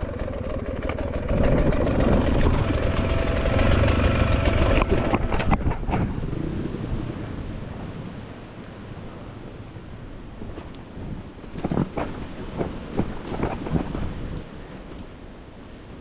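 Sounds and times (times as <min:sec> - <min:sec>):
dirt bike engine running: 0:00.0 - 0:06.9.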